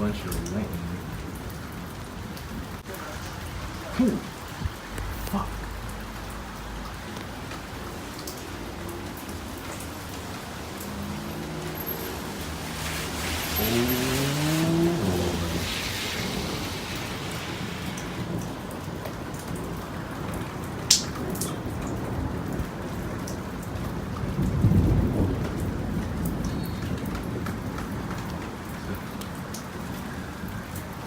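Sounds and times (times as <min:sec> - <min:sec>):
thunder rumbling: 0:00.0 - 0:30.6
steady rain falling: 0:00.0 - 0:31.0
sharp crack: 0:20.9 - 0:21.6.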